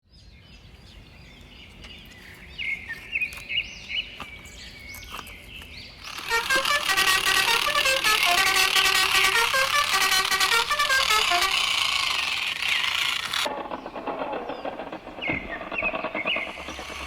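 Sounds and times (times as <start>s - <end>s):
birds chirping: 0.2s - 17.0s
loud run of pitched bird notes: 6.0s - 17.0s.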